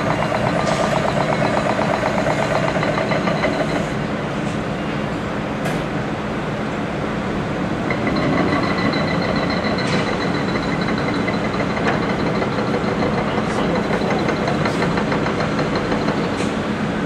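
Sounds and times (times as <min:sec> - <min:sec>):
hydraulic hammer pounding: 0:00.0 - 0:04.0, 0:07.8 - 0:16.7
diesel engine running: 0:00.0 - 0:05.6, 0:06.2 - 0:17.0
steady high whine: 0:00.0 - 0:15.2.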